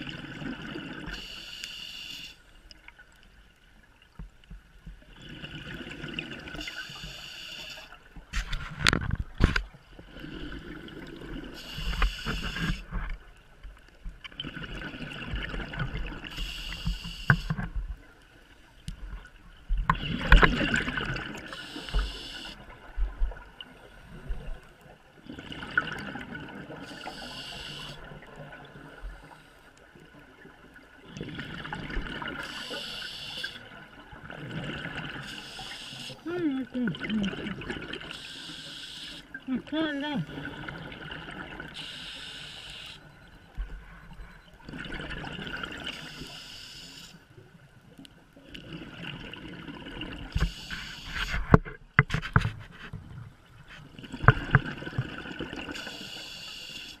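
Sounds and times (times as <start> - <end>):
diver breathing through regulator: 11.6 - 13.0, 21.5 - 22.6, 32.4 - 33.6, 41.8 - 43.0.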